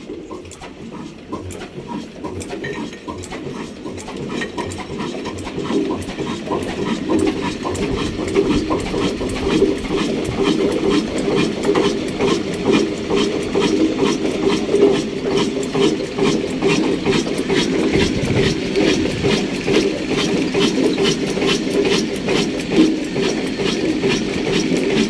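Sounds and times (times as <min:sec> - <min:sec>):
stationary diesel engine clattering: 0:00.0 - 0:25.0.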